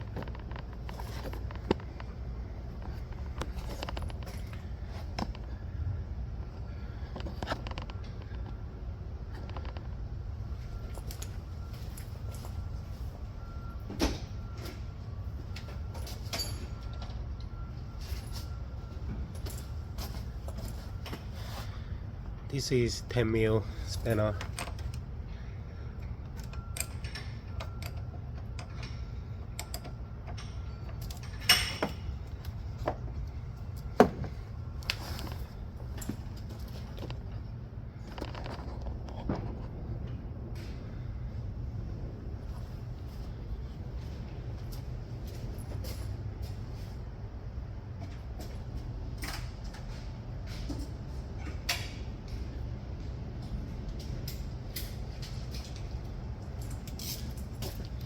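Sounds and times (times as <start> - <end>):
steady low hum: 0.0 - 58.0
spanner clicking on a bolt: 26.3 - 32.0.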